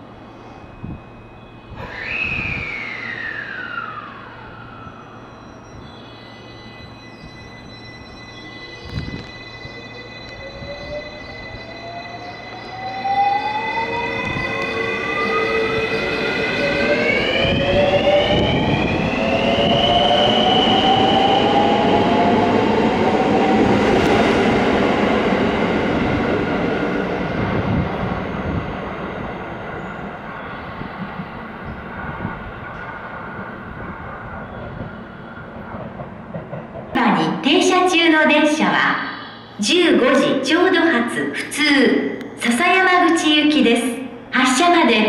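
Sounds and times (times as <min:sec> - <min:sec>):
train running noise: 0:00.0 - 0:42.6
electric train motors whining: 0:00.1 - 0:24.8.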